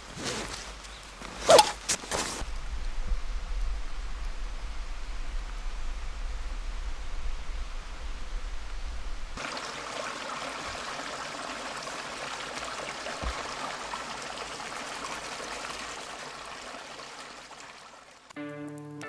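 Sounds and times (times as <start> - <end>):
small stream rushing: 0.0 - 18.3
low rumble: 2.4 - 9.4.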